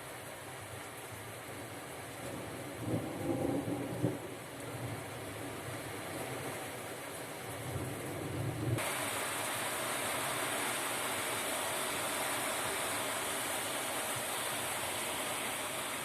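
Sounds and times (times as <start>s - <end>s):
heavy rain pouring: 0.0s - 16.0s
low thunder rumble: 2.2s - 5.6s.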